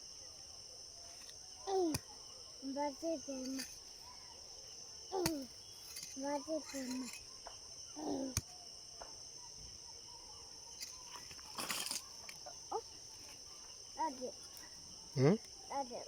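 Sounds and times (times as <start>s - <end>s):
chorus of insects: 0.0s - 16.0s.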